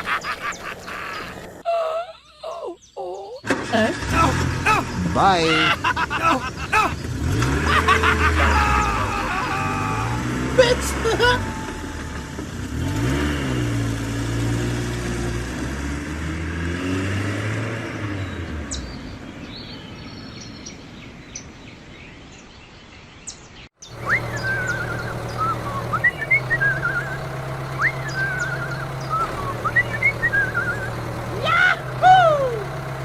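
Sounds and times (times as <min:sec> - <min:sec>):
birds chirping: 0:00.0 - 0:15.1, 0:17.9 - 0:33.0
engine revving: 0:03.4 - 0:19.3, 0:23.8 - 0:33.0.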